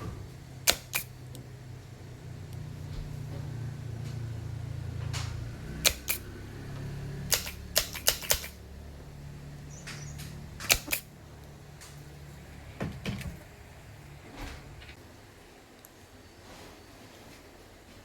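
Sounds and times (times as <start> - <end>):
steady low hum: 0.0 - 18.0
sharp clicks and taps: 0.6 - 1.4, 7.3 - 8.6, 9.9 - 12.0.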